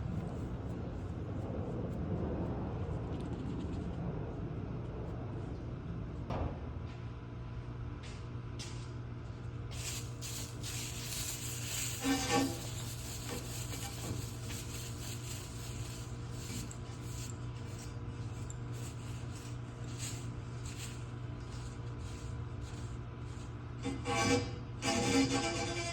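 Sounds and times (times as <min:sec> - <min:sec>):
steady low hum: 0:00.0 - 0:25.9
scrubbing copper pipe: 0:09.7 - 0:24.4.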